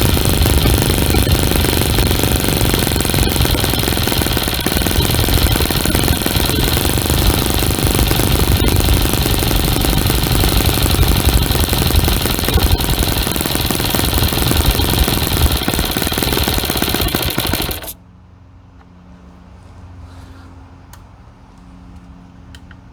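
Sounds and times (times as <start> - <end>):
faint steady hum: 0.0 - 18.0
model engine running loud and fast: 0.0 - 18.0.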